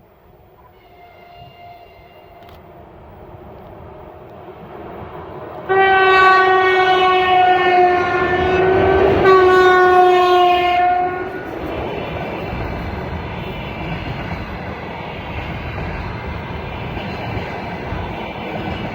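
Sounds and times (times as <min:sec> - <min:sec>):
freight train rumble: 0:00.0 - 0:18.9
locomotive horn blast: 0:00.6 - 0:02.6, 0:05.6 - 0:11.8.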